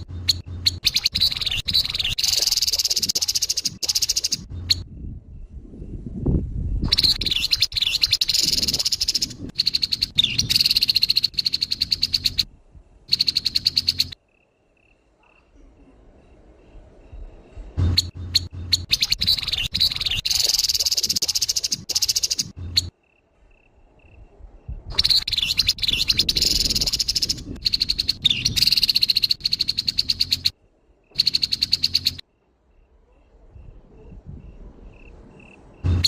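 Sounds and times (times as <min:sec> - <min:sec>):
bird chattering rattle calls: 0:00.0 - 0:04.8, 0:06.9 - 0:12.5, 0:13.1 - 0:14.2, 0:17.8 - 0:22.9, 0:24.9 - 0:30.5, 0:31.1 - 0:32.2.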